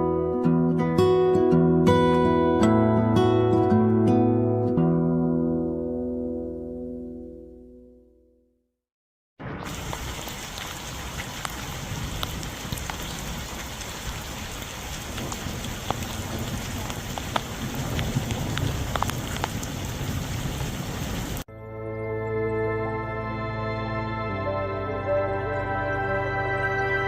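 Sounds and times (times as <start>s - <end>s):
steady rain hiss: 9.4s - 21.4s
raindrop taps: 9.6s - 21.4s.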